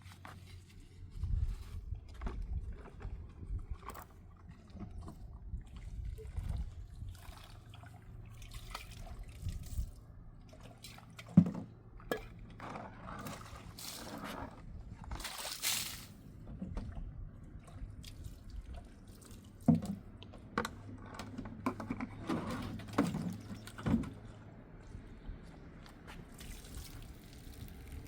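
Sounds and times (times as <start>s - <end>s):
water pouring and splashing: 2.5s - 16.2s, 17.6s - 20.0s, 26.3s - 28.0s.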